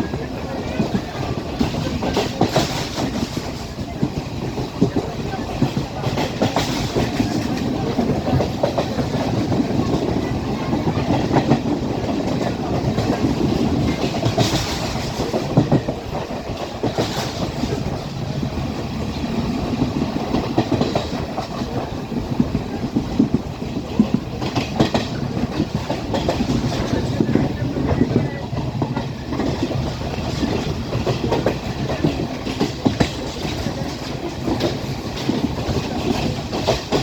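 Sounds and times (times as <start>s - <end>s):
train rumbling: 0.0s - 37.0s.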